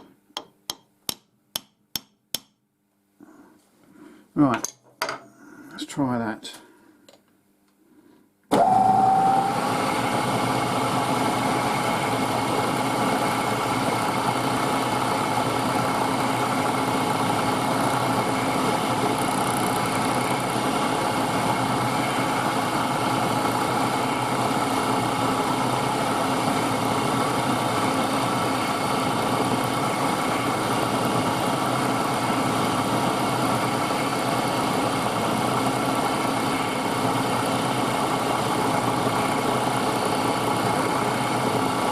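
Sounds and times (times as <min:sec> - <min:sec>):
milling machine motor whine: 0:08.5 - 0:41.9.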